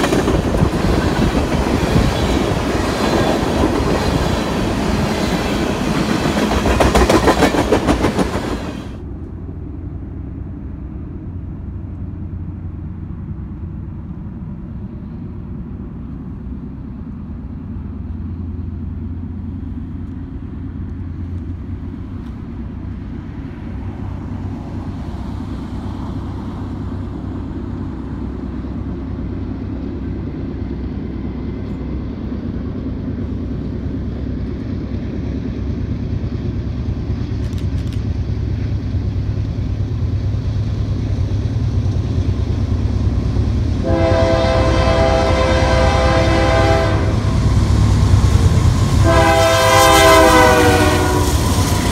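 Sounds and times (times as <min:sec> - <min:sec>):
train rumble: 0:00.0 - 0:51.9
train horn chord: 0:43.8 - 0:47.4, 0:49.0 - 0:51.5.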